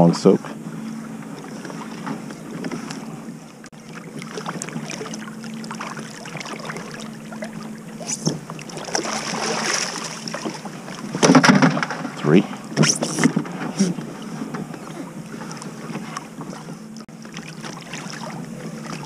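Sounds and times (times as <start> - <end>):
water splashing and dripping: 3.7 - 11.7.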